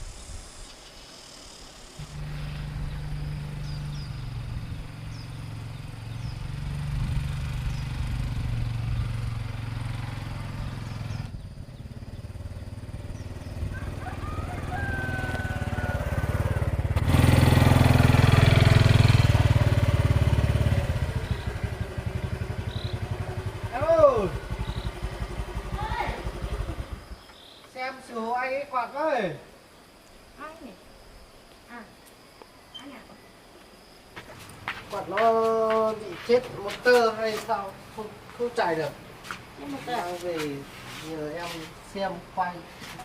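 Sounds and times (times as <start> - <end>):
small motorcycle engine running: 2.0 - 27.3.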